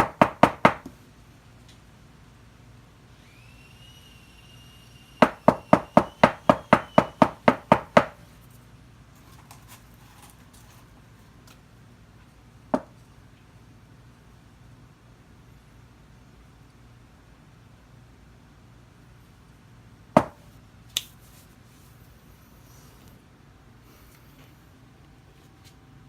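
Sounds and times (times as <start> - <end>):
sharp knocks: 20.2 - 20.4.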